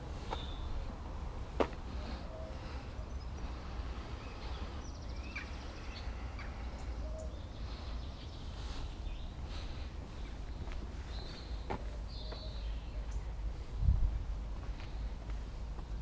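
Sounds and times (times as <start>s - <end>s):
low outdoor rumble: 0.0s - 16.0s
bird chirps: 4.2s - 9.4s, 10.1s - 13.4s.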